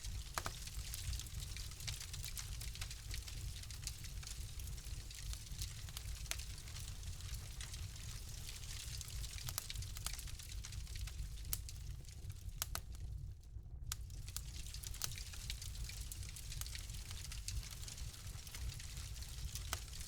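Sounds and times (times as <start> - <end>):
fire rumble and hiss: 0.0 - 20.0
wood fire crackling and popping: 0.0 - 20.0.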